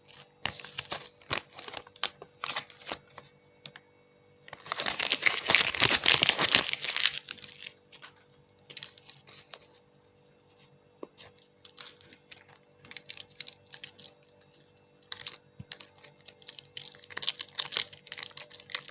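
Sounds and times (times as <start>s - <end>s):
plastic wrapper tearing: 0.0s - 3.2s, 4.5s - 9.6s, 11.7s - 18.9s
wrapper crinkling crackles: 0.0s - 3.8s, 4.5s - 9.8s, 11.2s - 18.9s.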